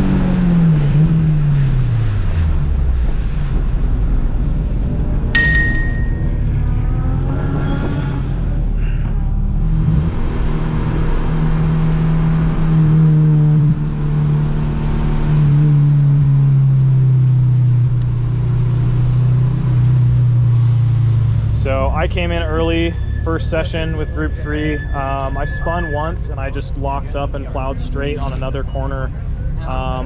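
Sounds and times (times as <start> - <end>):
road and tyre noise: 0.0 - 30.0
car engine revving: 6.1 - 30.0.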